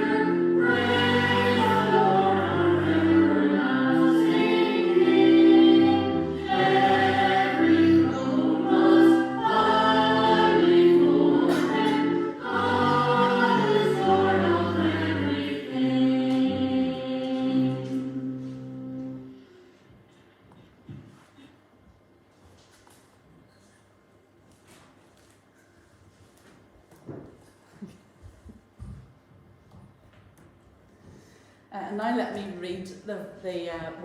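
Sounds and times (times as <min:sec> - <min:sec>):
choir singing a hymn: 0:00.0 - 0:19.4.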